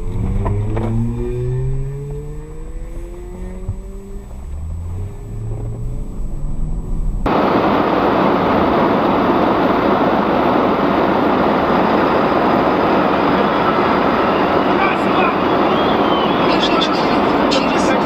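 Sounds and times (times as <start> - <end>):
vehicle engine humming: 0.0 - 18.0
loud steady rushing noise: 3.9 - 18.0.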